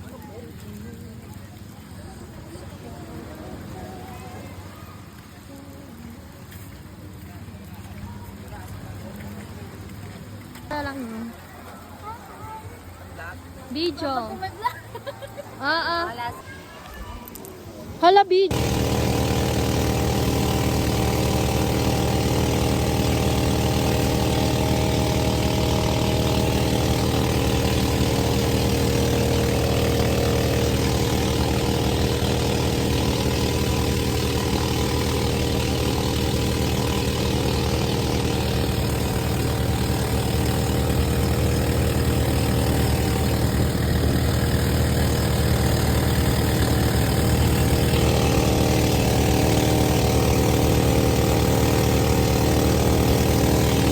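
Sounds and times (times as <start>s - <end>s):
engine droning steadily: 0.0s - 14.9s, 17.2s - 53.9s.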